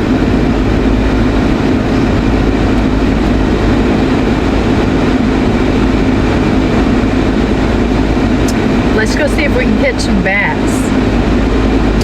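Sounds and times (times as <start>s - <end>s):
air conditioning blowing: 0.0s - 12.0s
vehicle engine idling: 0.0s - 12.0s.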